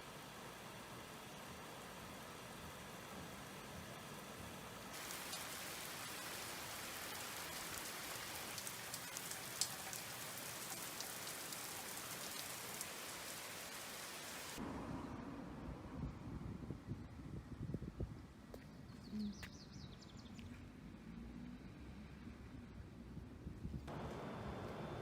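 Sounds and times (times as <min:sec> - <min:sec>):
steady rain hiss: 0:00.0 - 0:14.6, 0:23.9 - 0:25.0.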